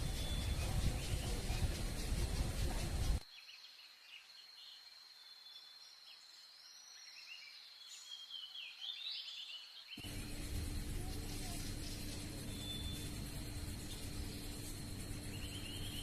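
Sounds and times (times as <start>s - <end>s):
thin steady high tone: 0.0s - 3.2s, 10.0s - 16.0s
small birds chirping: 0.0s - 16.0s.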